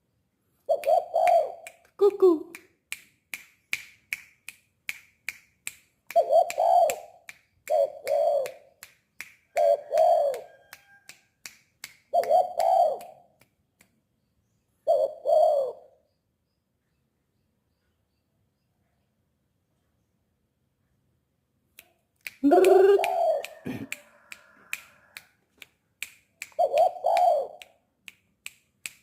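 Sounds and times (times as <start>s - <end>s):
dove cooing: 0.7s - 2.4s, 6.2s - 8.6s, 9.5s - 10.6s, 12.2s - 13.2s, 14.8s - 16.0s, 22.4s - 25.1s, 26.6s - 27.6s.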